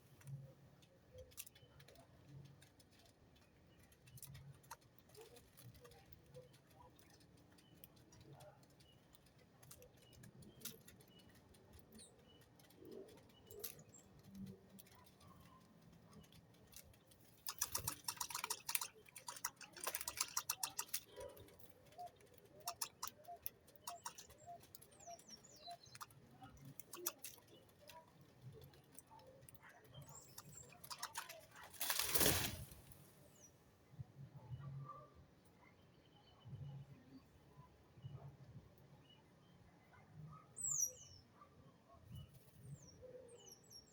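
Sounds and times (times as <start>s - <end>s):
small birds moving about: 0.0s - 33.6s
wings flapping: 14.8s - 24.7s, 25.9s - 33.1s.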